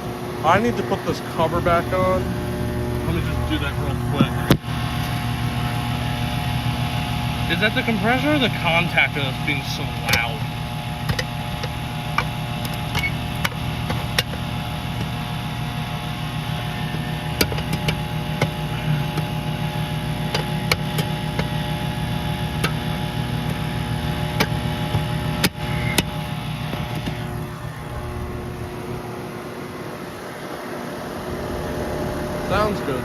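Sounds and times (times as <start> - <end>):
air conditioner buzzing: 0.0 - 33.0
sharp clicks and taps: 11.0 - 15.2, 17.3 - 19.3.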